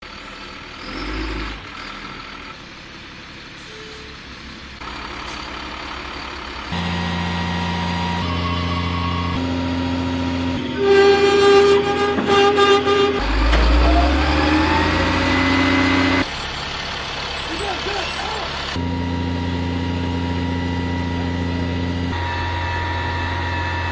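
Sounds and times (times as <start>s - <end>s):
truck engine running: 0.0s - 23.9s
machinery whining: 4.8s - 23.9s.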